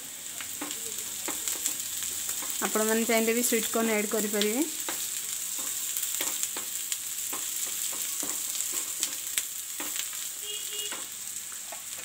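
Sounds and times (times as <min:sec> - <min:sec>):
vegetables sizzling in oil: 0:00.0 - 0:12.0
wooden spatula scraping and tapping: 0:04.8 - 0:10.1.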